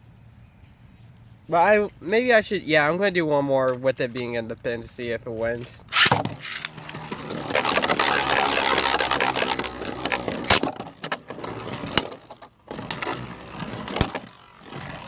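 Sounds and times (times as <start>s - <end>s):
spinning tops whirring and grinding: 5.9s - 15.0s.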